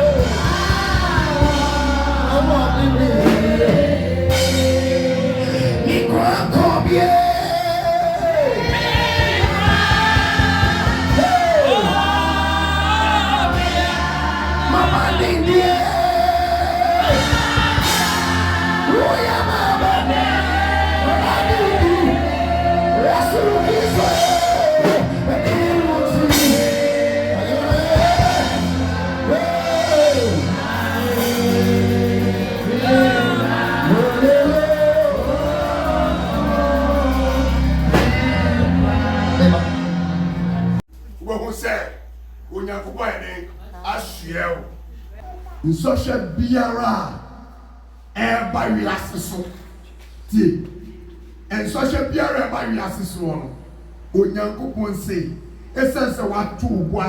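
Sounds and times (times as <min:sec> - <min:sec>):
congregation singing a hymn: 0:00.0 - 0:40.8
bass and drums: 0:00.0 - 0:41.2.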